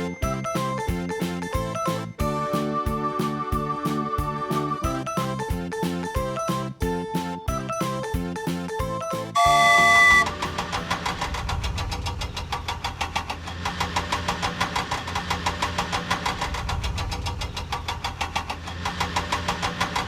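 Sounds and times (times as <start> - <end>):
cartoon vehicle engine running: 9.4 - 20.0.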